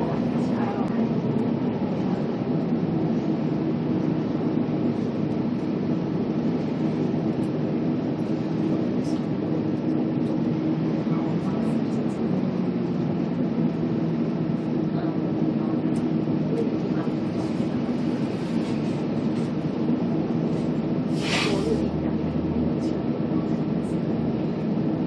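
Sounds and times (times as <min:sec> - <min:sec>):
road noise: 0:00.0 - 0:07.0, 0:16.6 - 0:19.9
bus engine droning: 0:00.0 - 0:25.0.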